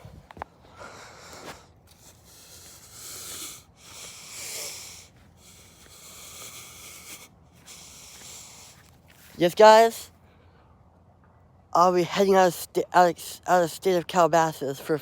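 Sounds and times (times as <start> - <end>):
person breathing close to microphone: 0.0 - 9.4.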